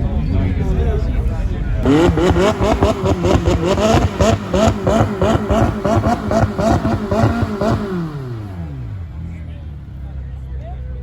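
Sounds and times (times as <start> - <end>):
car engine bouncing off rev limiter: 1.8 - 9.0.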